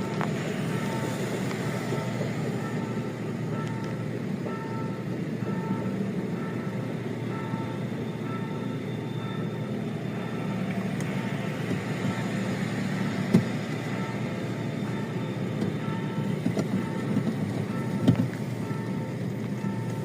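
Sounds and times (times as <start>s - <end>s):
two-tone warning beep: 0.0s - 1.2s, 1.8s - 12.4s, 13.8s - 20.0s
traffic rumble: 0.0s - 20.0s.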